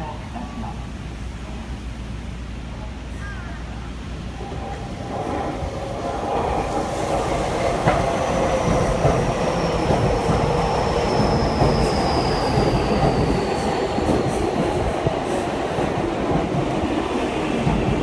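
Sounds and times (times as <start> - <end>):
high train whine: 0.0 - 18.0
train wheel-on-rail rumble: 0.0 - 18.0.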